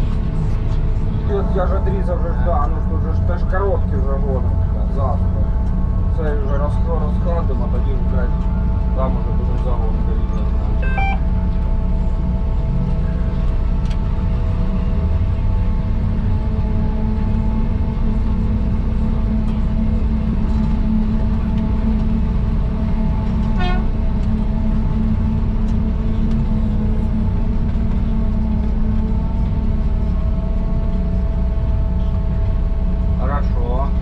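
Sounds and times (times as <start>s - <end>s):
forage harvester engine drone: 0.0s - 34.0s
short beep: 10.8s - 11.3s.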